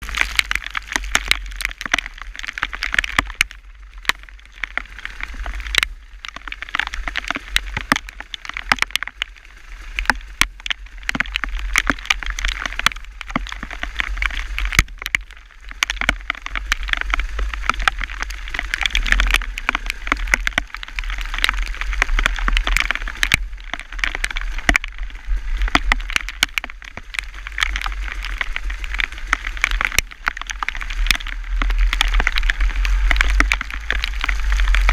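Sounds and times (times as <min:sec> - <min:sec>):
hailstones pelting a hard surface: 0:00.0 - 0:34.9
rain hiss: 0:00.0 - 0:34.9.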